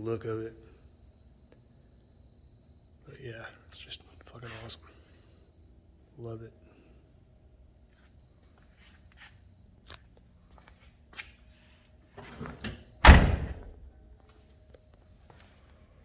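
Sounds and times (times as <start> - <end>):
faint shuffling: 7.8 - 12.4, 14.2 - 16.0
truck door slamming shut: 12.5 - 13.8.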